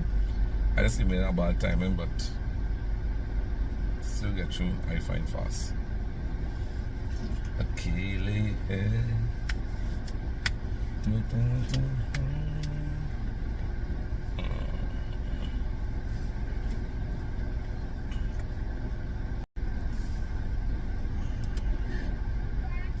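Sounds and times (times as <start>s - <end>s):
car engine and tyres rumbling: 0.0s - 23.0s.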